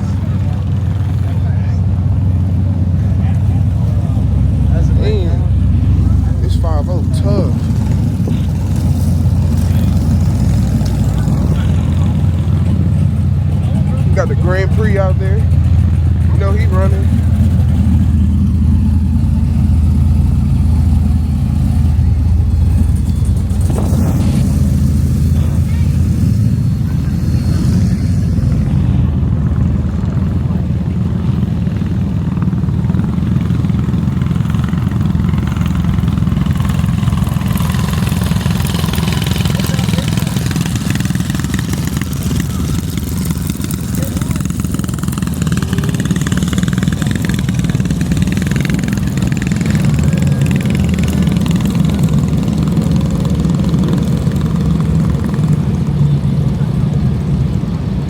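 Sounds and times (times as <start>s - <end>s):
car engines rumbling: 0.0s - 58.0s.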